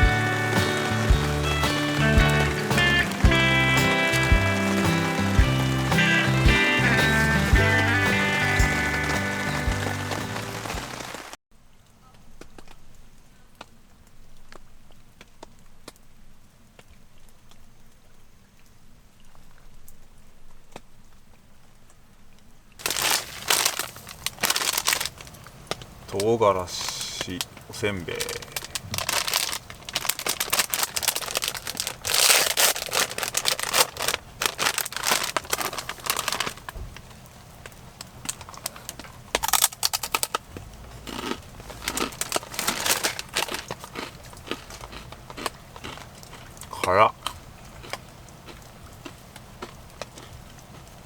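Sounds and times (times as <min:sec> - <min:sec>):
plastic wrapper crinkling: 0:00.0 - 0:11.4, 0:22.8 - 0:36.8, 0:38.0 - 0:46.5
raindrops tapping: 0:00.0 - 0:11.4, 0:22.8 - 0:46.7
low steady background noise: 0:00.0 - 0:51.0.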